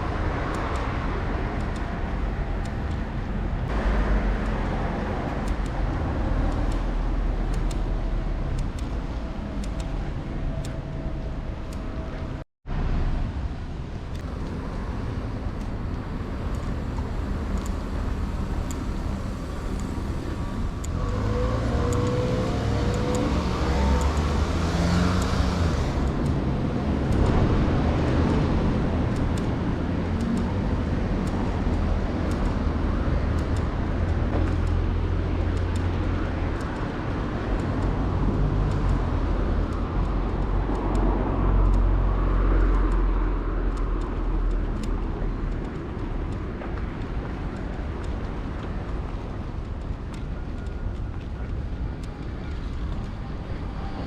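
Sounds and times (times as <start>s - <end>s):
cars passing by: 0.0s - 54.0s
low road rumble: 0.0s - 54.0s
vehicle passing loudly: 16.4s - 33.4s.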